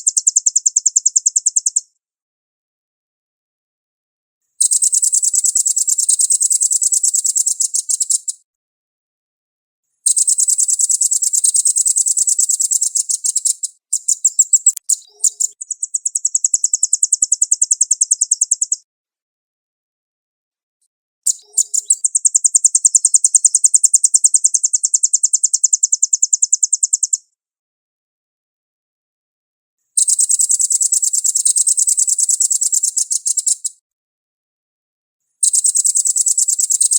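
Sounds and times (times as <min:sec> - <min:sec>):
bird high-pitched trilling song: 0:00.0 - 0:01.9, 0:04.6 - 0:08.4, 0:10.1 - 0:18.9, 0:21.3 - 0:27.3, 0:30.0 - 0:33.8, 0:35.4 - 0:36.9.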